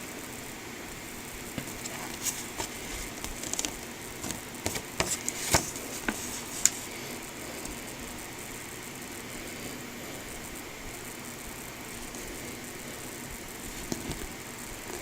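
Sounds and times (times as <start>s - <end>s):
faint steady hiss: 0.0s - 15.0s
paper and plastic rustling: 1.6s - 7.0s.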